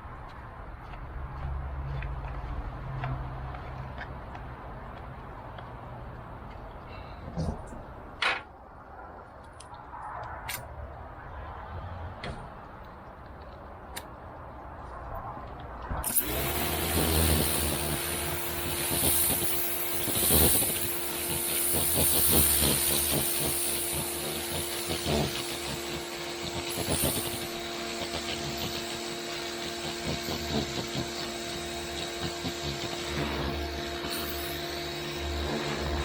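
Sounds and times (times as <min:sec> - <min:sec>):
pressure washer motor humming: 0:16.0 - 0:36.0.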